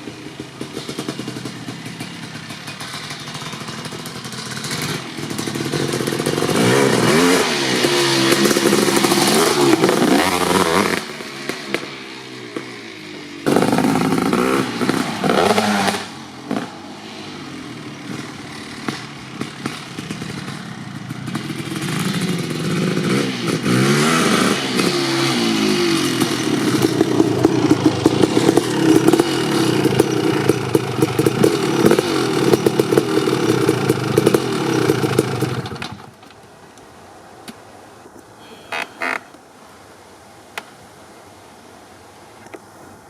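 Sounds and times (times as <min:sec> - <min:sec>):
two-stroke motorcycle engine revving: 0:00.0 - 0:36.0
exhaust pops and crackles: 0:08.3 - 0:12.7, 0:18.1 - 0:22.5, 0:26.2 - 0:36.4.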